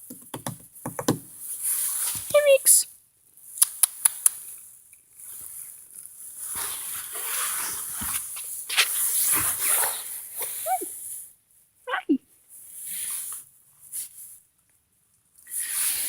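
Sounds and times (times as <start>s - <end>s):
sharp clicks: 3.6s - 4.4s.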